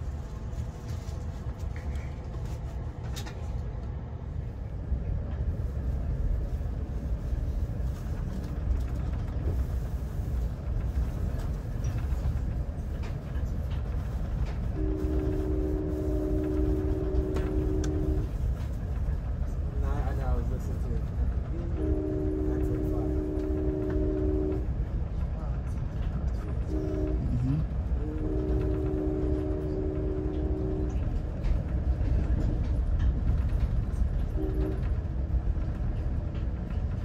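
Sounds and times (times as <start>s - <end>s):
train rumble from inside coach: 0.0s - 37.0s
train horn chord: 14.7s - 18.4s, 21.8s - 24.8s, 26.6s - 31.2s, 34.3s - 35.0s.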